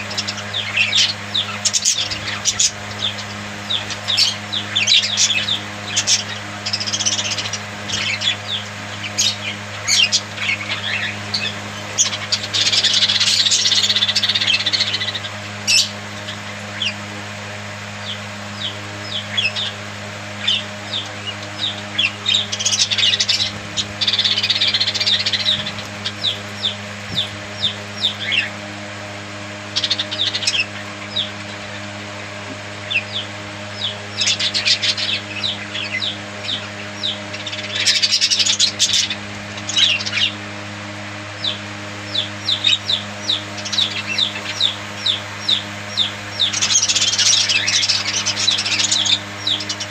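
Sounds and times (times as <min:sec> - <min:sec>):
budgerigars chirping and warbling: 0:00.0 - 0:49.9
steady low hum: 0:00.0 - 0:49.9.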